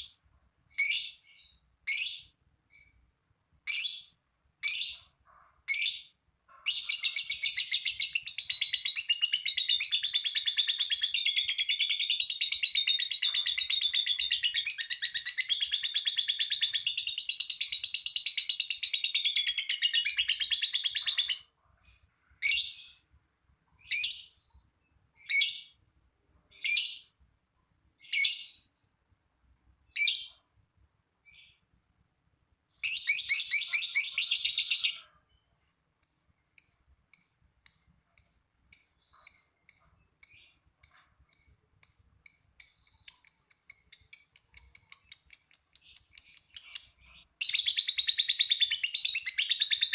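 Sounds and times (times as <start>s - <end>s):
lovebird chattering: 5.7s - 22.8s, 36.0s - 49.9s.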